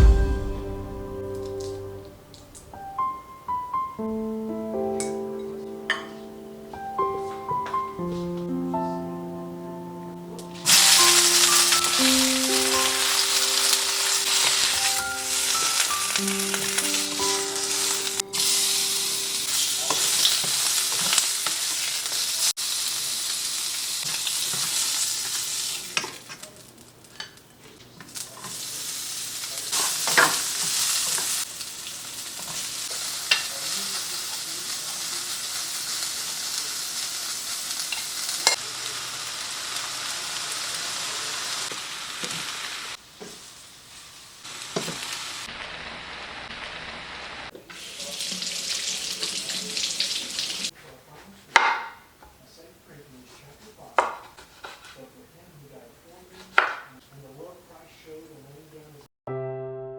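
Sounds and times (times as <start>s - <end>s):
food sizzling in a pan: 10.2s - 50.8s.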